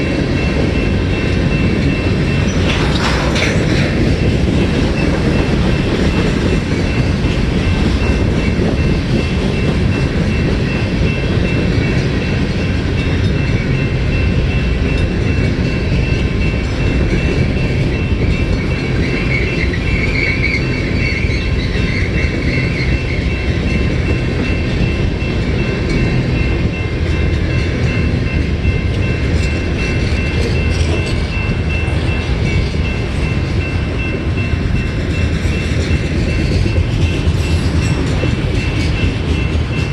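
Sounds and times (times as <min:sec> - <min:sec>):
freight cars rumbling on rails: 0:00.0 - 0:39.9
wheel squeal: 0:18.3 - 0:23.4.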